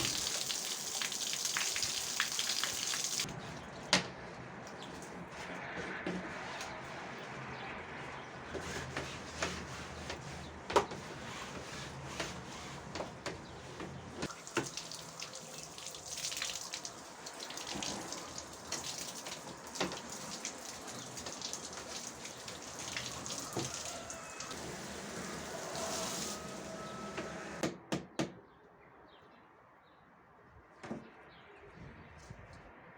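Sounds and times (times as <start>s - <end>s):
water splashing and running: 0.0s - 3.3s, 14.3s - 26.5s.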